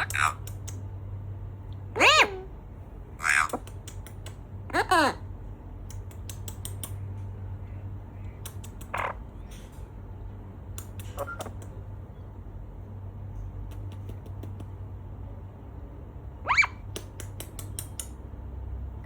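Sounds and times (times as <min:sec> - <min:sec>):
parrot squawking: 0:00.0 - 0:00.7, 0:01.9 - 0:02.5, 0:03.1 - 0:03.9, 0:04.7 - 0:05.3, 0:08.7 - 0:09.4, 0:11.0 - 0:11.7, 0:16.4 - 0:16.9
steady low hum: 0:00.0 - 0:19.0
sharp clicks: 0:00.1 - 0:00.9, 0:03.5 - 0:04.5, 0:05.8 - 0:07.3, 0:08.2 - 0:09.1, 0:10.6 - 0:11.8, 0:16.9 - 0:18.3.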